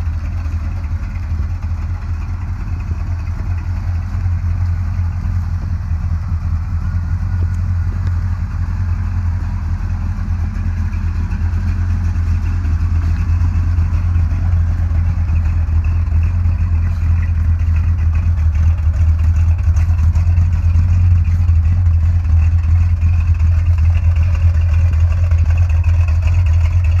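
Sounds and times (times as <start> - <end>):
pickup engine droning: 0.0 - 27.0.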